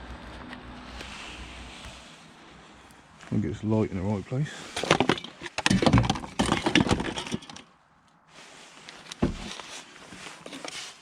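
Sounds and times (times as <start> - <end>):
scrap debris clattering: 4.6 - 7.7.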